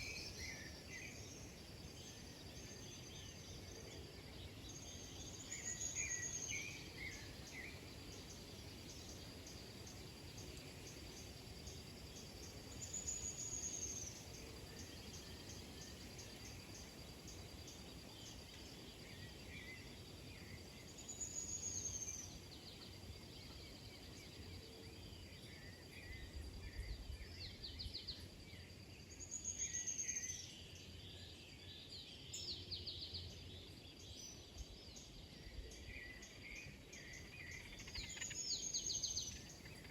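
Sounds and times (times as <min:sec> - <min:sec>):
high-pitched insect trill: 0:34.6 - 0:39.9
small bird chirps: 0:36.0 - 0:39.9.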